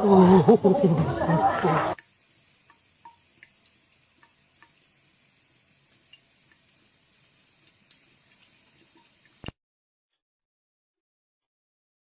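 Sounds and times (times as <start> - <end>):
faint steady hiss: 0.1 - 9.6.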